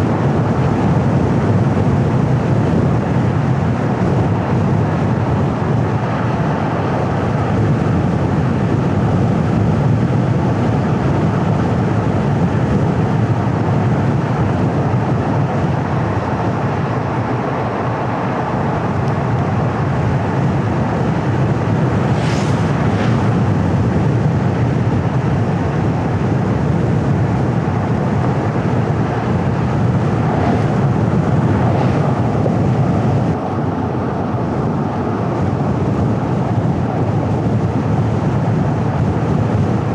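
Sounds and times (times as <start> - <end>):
wind: 0.0 - 39.9
car engine: 12.6 - 35.5
short sharp hiss: 22.1 - 23.2.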